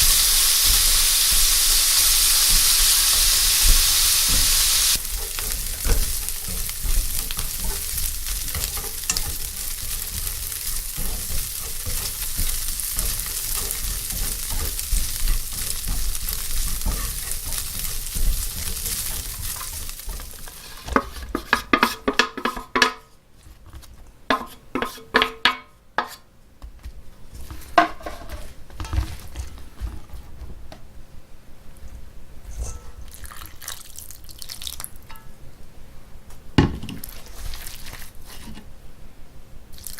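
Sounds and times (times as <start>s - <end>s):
pancakes sizzling in oil: 0.0s - 22.6s
utensils clattering against cookware: 0.0s - 23.0s.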